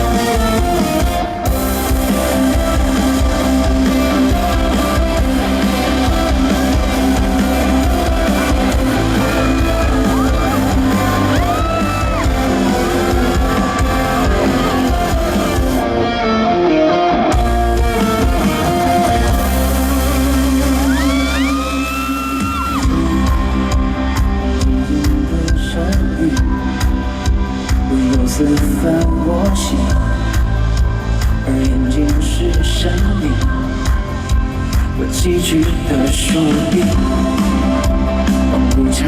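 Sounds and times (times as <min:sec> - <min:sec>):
live band instrumental music: 0:00.0 - 0:39.0.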